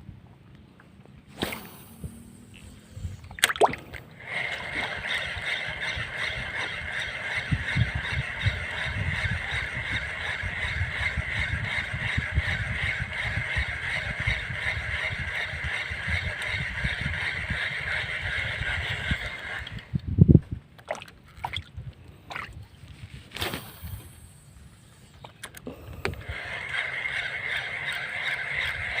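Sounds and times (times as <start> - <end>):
fishing reel whirring: 1.3 - 20.0, 22.8 - 29.0
water sloshing against boat hull: 3.2 - 8.9, 20.6 - 23.4.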